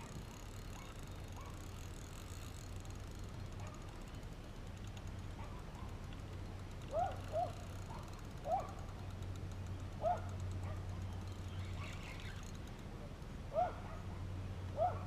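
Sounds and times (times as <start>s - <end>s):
steady low hum: 0.0s - 15.0s
bird chirping: 11.0s - 12.5s.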